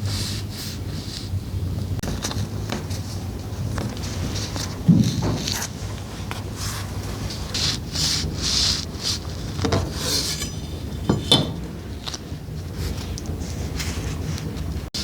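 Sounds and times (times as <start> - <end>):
scraping strokes: 4.2 - 12.2.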